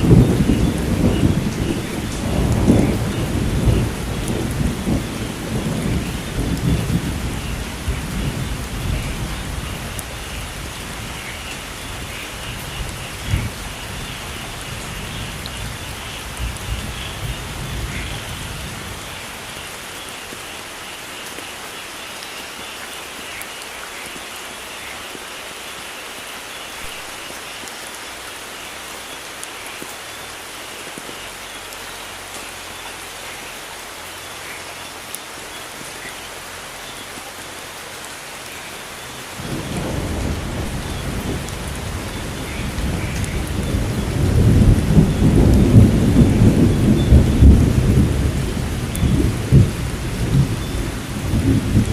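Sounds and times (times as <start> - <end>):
rolling thunder rumble: 0.0 - 19.7, 39.3 - 51.9
heavy rain hissing: 0.0 - 51.9.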